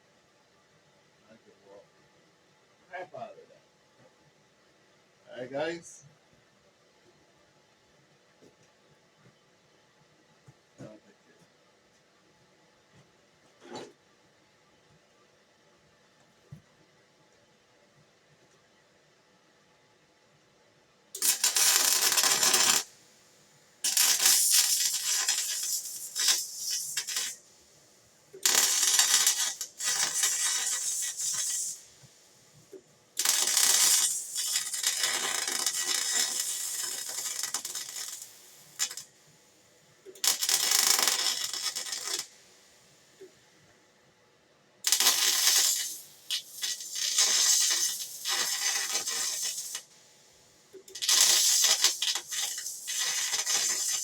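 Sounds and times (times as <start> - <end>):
arc welding crackling sizzle: 21.2 - 39.2, 40.0 - 43.4, 44.8 - 54.0.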